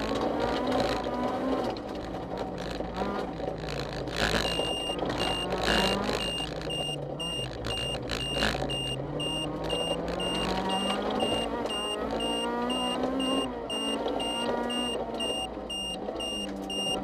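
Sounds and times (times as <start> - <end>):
car engine accelerating: 0.0 - 17.0
short high electronic beeps: 4.7 - 17.0.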